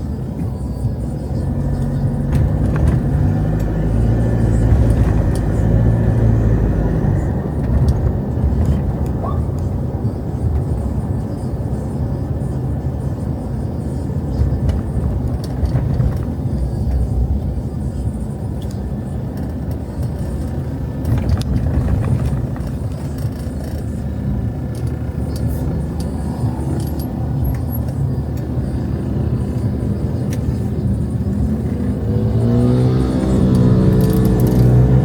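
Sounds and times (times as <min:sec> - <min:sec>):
vehicles passing with low rumble: 0:00.0 - 0:35.0
engine approaching with rising pitch: 0:01.3 - 0:09.7, 0:24.7 - 0:35.0.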